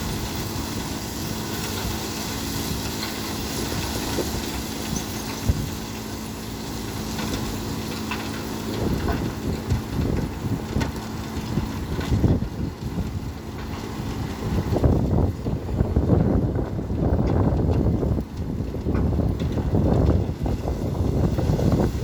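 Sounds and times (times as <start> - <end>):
heavy truck engine running: 0.0 - 22.0
wind buffeting microphone: 8.7 - 22.0.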